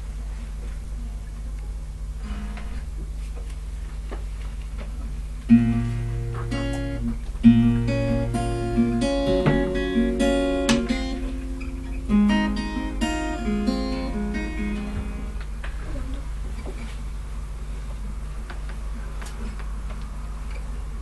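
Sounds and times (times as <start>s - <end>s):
acoustic guitar chords: 2.2s - 3.1s, 5.5s - 16.0s.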